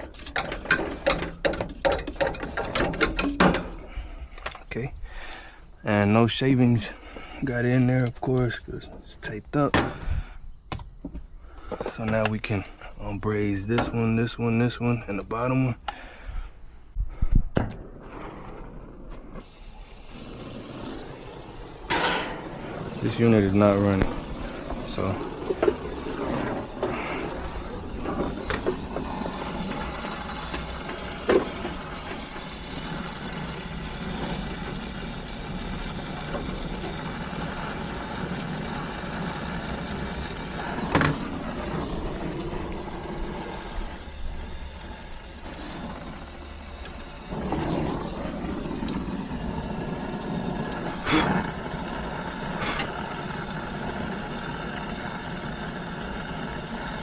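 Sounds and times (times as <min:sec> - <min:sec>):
machine running with low hum: 0:19.1 - 0:57.0.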